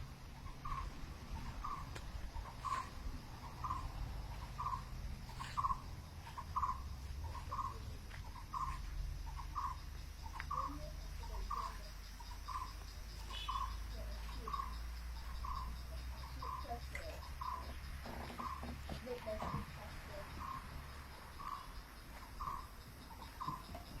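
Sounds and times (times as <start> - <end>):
steady low hum: 0.0 - 17.6.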